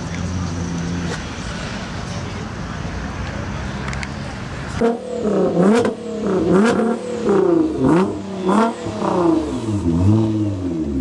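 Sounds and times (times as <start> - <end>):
car engine revving: 4.7 - 11.0.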